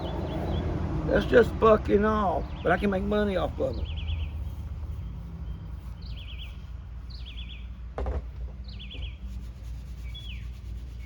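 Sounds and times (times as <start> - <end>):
songbird singing: 0.0 - 11.0
brief knock: 8.0 - 9.1.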